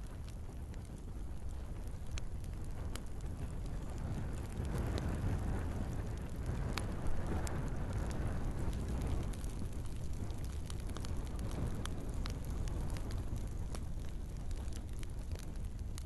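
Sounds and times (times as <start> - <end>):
wood fire burning: 0.0 - 16.0.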